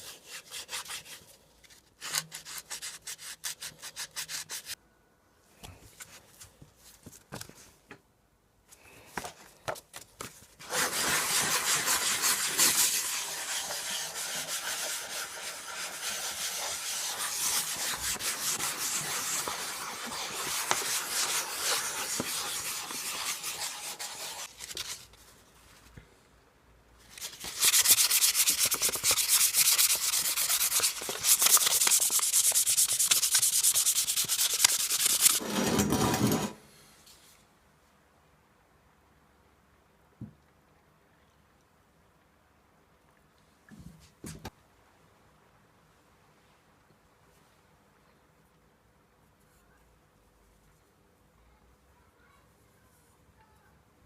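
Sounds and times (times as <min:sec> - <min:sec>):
sandpaper rubbing: 0:00.0 - 0:01.2, 0:02.0 - 0:04.8, 0:10.6 - 0:25.0, 0:27.2 - 0:35.9.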